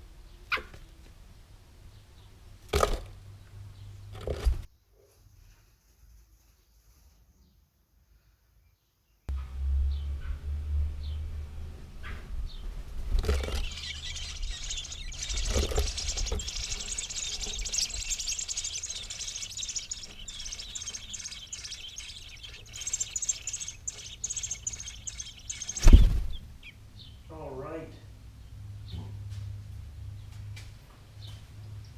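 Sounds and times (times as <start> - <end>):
small birds chirping: 12.0 - 27.3.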